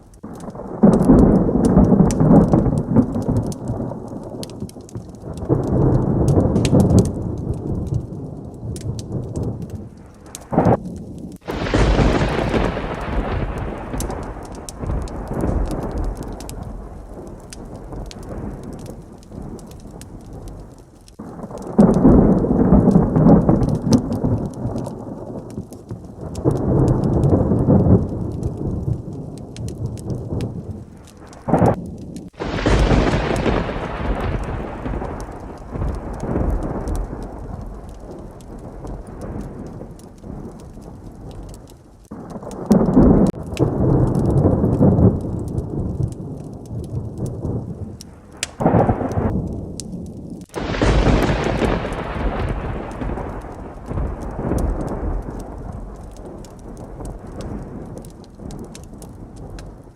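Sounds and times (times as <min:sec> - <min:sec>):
heavy rain: 0:00.0 - 0:59.9
rolling thunder: 0:00.0 - 0:59.9
sharp thunderclap: 0:00.0 - 0:59.9.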